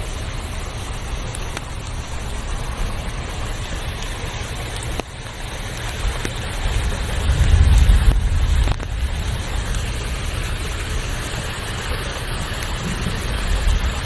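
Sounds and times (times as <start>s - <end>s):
rushing water: 0.0s - 14.0s
faint clicks: 1.2s - 2.2s
low rumble: 6.5s - 14.0s.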